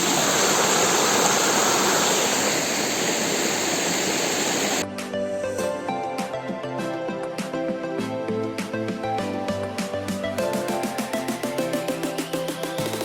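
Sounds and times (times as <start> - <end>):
waterfall rushing: 0.0 - 4.8.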